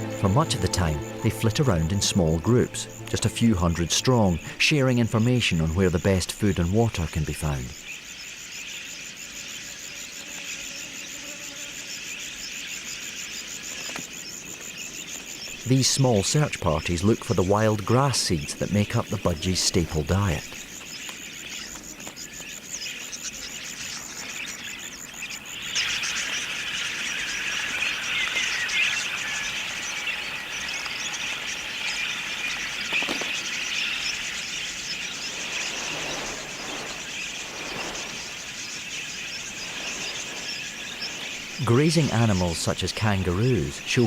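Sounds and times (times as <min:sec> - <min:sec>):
budgerigars chattering: 0:11.8 - 0:44.0.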